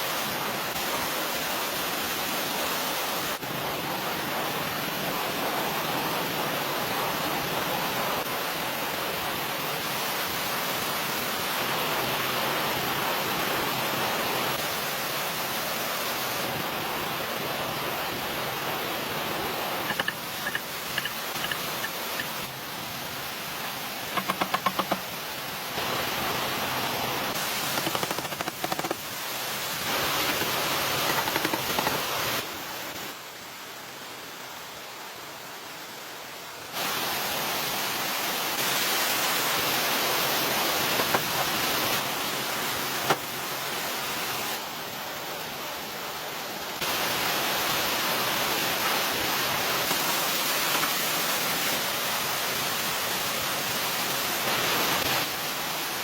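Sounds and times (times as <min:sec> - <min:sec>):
steady rushing noise: 0:14.5 - 0:33.2.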